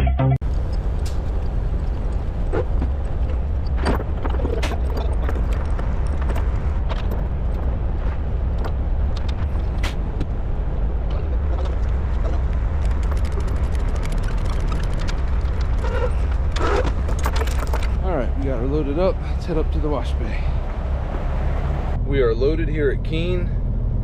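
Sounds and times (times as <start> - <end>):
diesel engine rumble: 0.0 - 24.0
light clicks and clanks: 0.6 - 7.7, 11.1 - 18.0.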